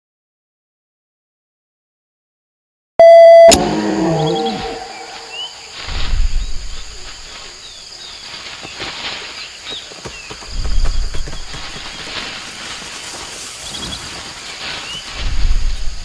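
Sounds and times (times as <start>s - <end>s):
chirping bird calls: 3.5s - 6.6s
high insect drone: 3.6s - 16.0s.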